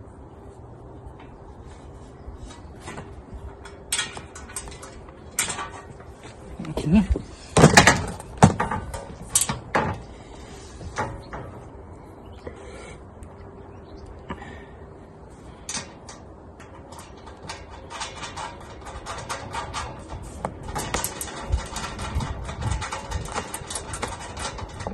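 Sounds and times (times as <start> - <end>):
metal parts knocking and clinking: 3.6 - 6.1, 7.5 - 10.1, 15.6 - 24.9.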